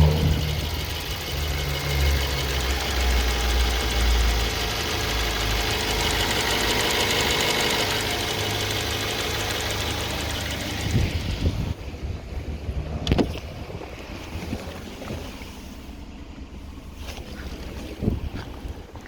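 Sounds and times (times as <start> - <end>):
fast even engine ticking: 0.0 - 11.8
car engine running: 0.0 - 19.0
heavy low engine rumble: 0.0 - 19.0.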